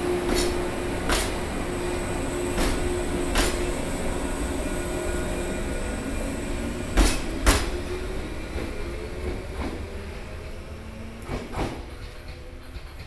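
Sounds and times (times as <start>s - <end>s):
train humming: 0.0s - 13.0s
wheels clicking over rail joints: 11.2s - 13.0s.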